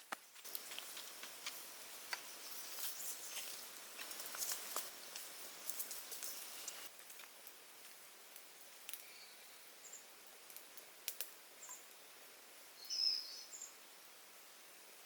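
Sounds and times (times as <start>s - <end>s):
faint forest ambience: 0.0s - 15.0s
sharp small clicks: 10.5s - 12.0s
high bird chirps: 12.8s - 13.7s.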